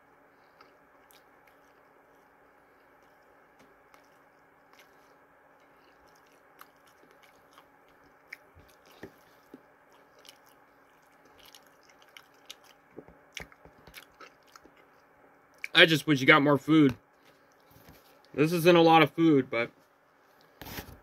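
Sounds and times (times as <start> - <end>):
low room hum: 0.0 - 21.0
person chewing crunchy food: 0.2 - 15.7.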